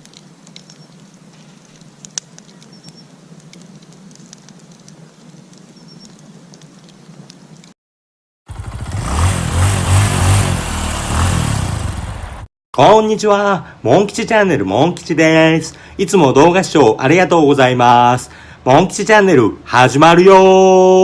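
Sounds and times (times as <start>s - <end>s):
campfire crackling and popping: 0.0s - 7.8s
motorcycle engine running: 8.5s - 12.5s.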